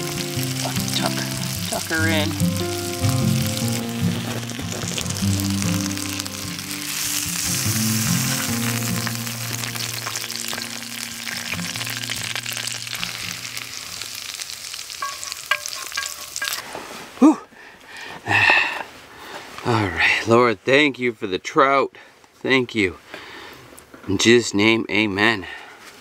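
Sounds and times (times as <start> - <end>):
soft background music: 0.0 - 14.1
food sizzling in a skillet: 0.0 - 16.8.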